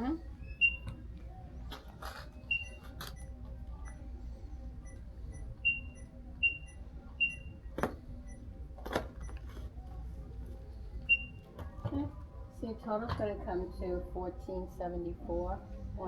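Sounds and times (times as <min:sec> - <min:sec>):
barcode scanner beeping: 0:00.4 - 0:01.1, 0:02.2 - 0:04.0, 0:04.8 - 0:08.5, 0:11.1 - 0:11.5.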